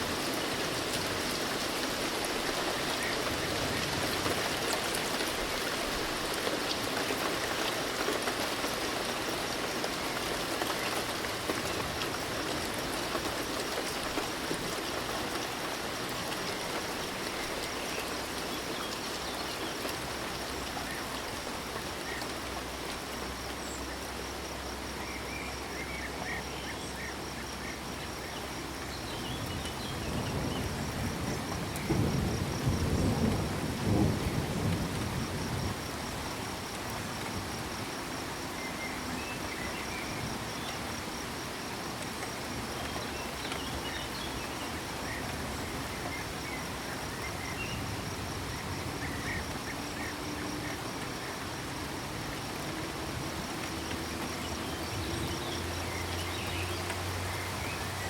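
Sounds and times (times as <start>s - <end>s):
steady rain: 0.0s - 58.0s
low rumble of thunder: 29.2s - 37.8s.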